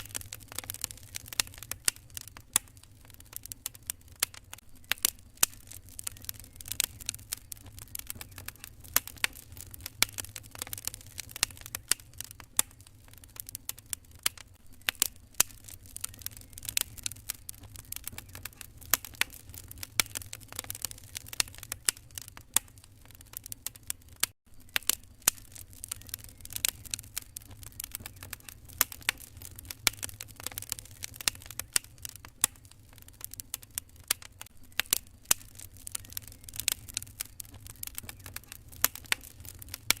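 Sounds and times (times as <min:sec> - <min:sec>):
wood fire crackling: 0:00.0 - 0:40.0.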